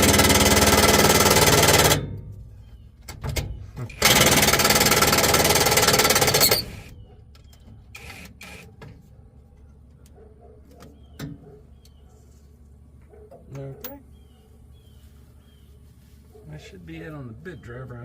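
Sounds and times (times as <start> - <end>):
impact driver rattling: 0.0 - 2.2, 3.2 - 6.9.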